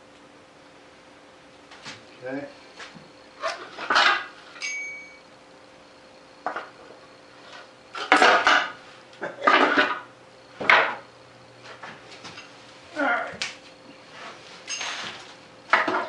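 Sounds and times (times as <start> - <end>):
metallic ring: 4.1 - 5.3, 14.6 - 15.2
metal parts clanking: 14.7 - 16.0.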